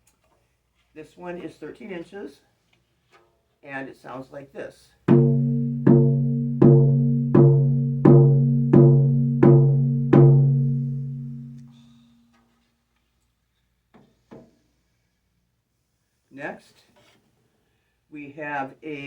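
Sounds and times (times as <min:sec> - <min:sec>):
frame drum strokes ringing: 0:05.1 - 0:11.8.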